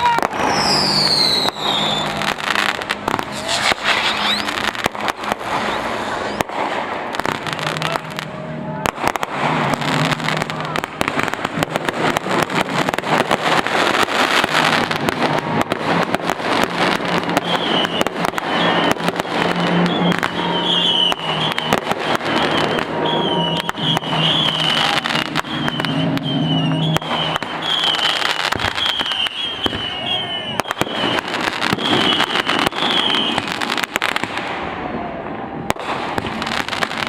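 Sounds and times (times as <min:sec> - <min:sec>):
high warbling whistle: 0:00.0 - 0:06.4, 0:17.0 - 0:33.8
fireworks crackling and banging: 0:00.0 - 0:37.0.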